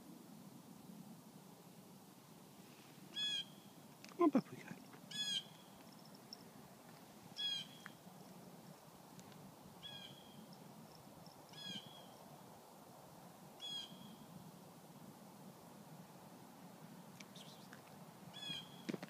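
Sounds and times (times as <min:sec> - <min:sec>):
outdoor background noise: 0:00.0 - 0:19.0
bird short high call: 0:17.2 - 0:17.8.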